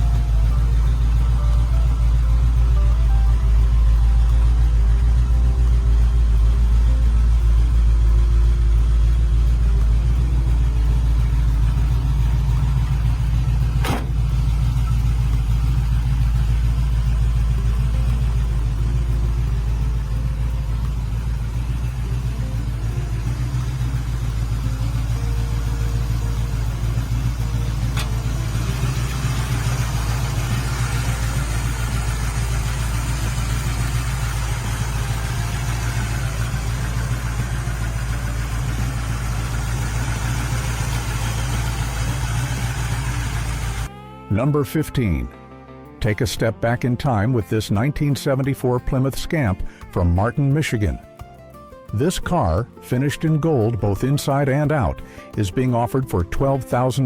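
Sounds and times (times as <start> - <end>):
car engine idling: 0.0 - 45.3
sharp click: 13.8 - 14.3.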